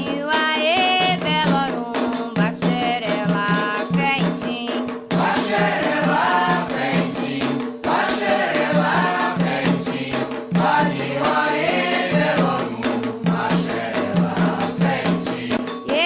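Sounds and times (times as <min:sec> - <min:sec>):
hand drums: 0:00.0 - 0:16.0
voices chanting: 0:05.2 - 0:15.6.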